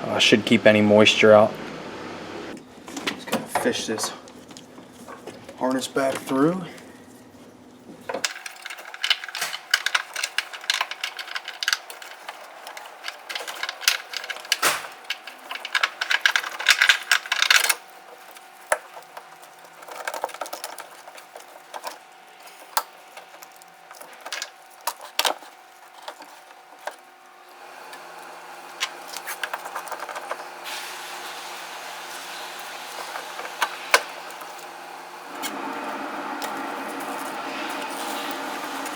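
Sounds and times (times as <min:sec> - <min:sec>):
wiring harness rustling: 0:08.1 - 0:31.3, 0:32.0 - 0:38.9
plastic connectors clicking: 0:08.2 - 0:27.0.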